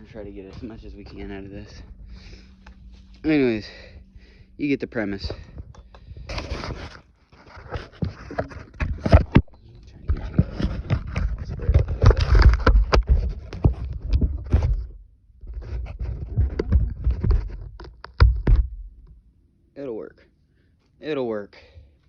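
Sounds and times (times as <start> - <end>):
clunks knocks and scraping: 0.0 - 4.4, 5.0 - 19.1.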